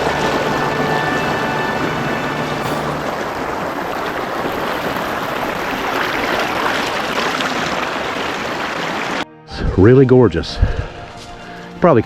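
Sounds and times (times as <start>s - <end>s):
water pouring over waterfall: 0.0s - 9.2s.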